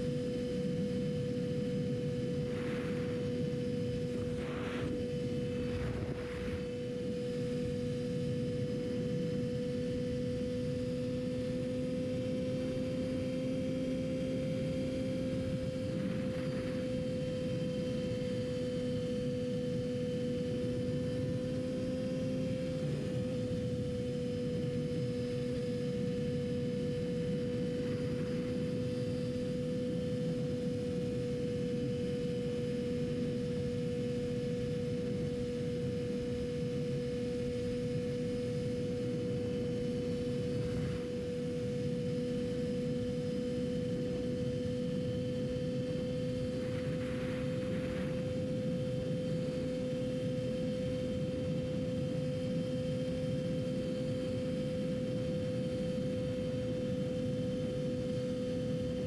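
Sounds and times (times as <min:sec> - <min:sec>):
motorcycle engine at steady revs: 0:00.0 - 0:52.2
wind and road rush: 0:02.4 - 0:07.6, 0:45.9 - 0:48.8.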